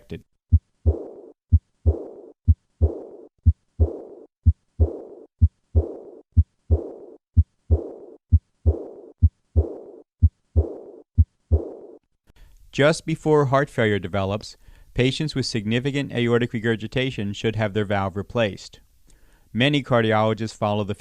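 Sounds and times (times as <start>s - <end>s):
blowing heart murmur: 0.5s - 12.0s
heartbeat: 0.5s - 12.0s.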